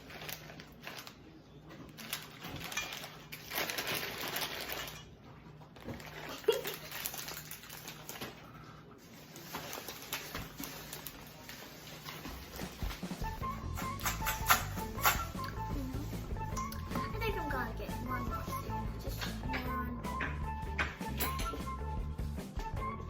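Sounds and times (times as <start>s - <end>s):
package crinkling: 0.0s - 13.2s
snack pieces rattling into bowl: 1.9s - 5.1s, 5.9s - 8.4s.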